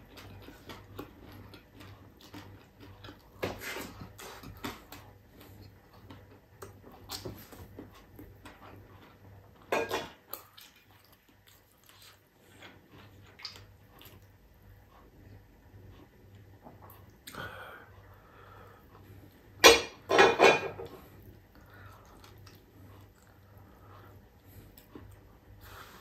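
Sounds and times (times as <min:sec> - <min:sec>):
food crunching: 0:00.0 - 0:09.2
wet chewing: 0:00.0 - 0:09.3, 0:10.2 - 0:15.4, 0:21.0 - 0:26.0.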